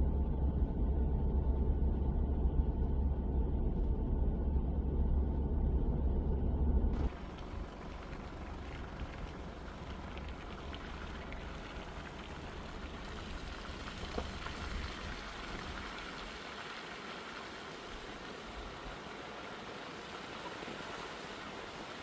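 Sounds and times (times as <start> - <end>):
car rumbling on wet road: 7.0 - 16.1
rain drops ticking: 7.0 - 22.0.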